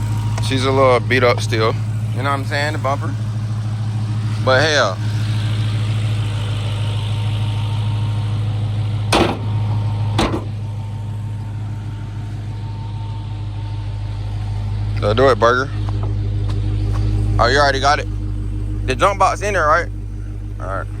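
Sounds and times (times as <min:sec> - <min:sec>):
car engine idling: 0:00.0 - 0:21.0
sharp knocks: 0:09.1 - 0:10.6.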